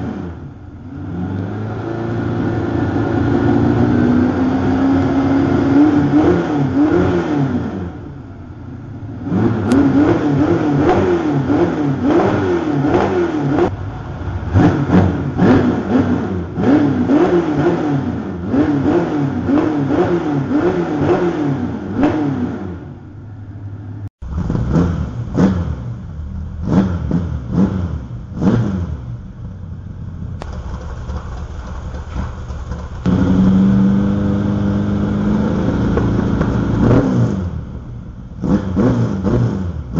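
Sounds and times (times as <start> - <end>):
engine revving in throttle blips: 0.0 - 8.2, 9.1 - 23.0, 24.2 - 39.9
engine idling: 29.0 - 37.0.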